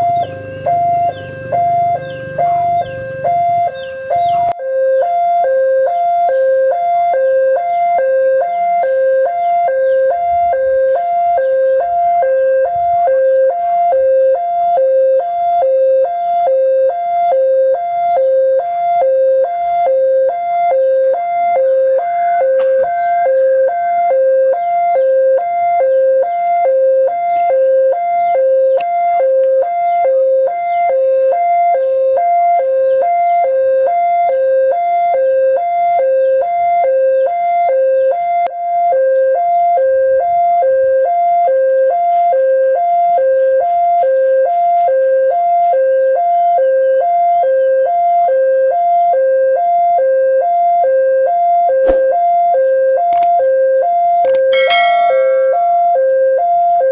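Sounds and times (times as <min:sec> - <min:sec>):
level-crossing two-note alarm chime: 0:00.0 - 0:04.9, 0:54.5 - 0:56.4.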